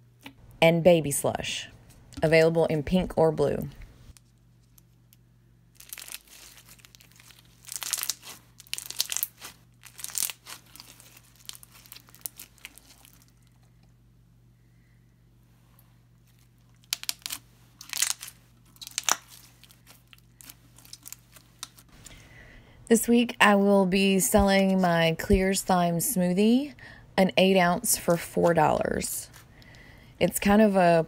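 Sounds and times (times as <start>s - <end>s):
slime crackling and popping: 5.8s - 13.3s, 16.8s - 21.9s.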